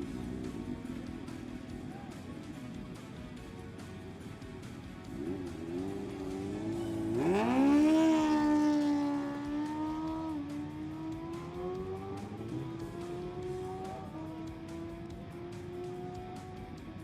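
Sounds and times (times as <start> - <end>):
background music: 0.0 - 17.0
superbike engine revving: 0.0 - 17.0.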